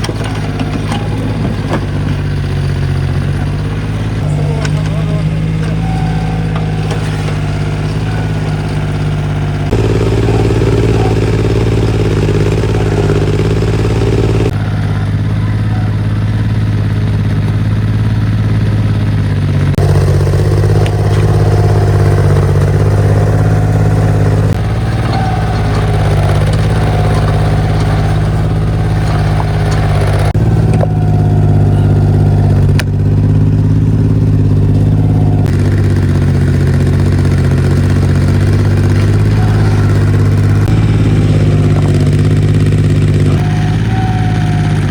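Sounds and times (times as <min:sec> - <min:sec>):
diesel engine droning: 0:00.0 - 0:44.9.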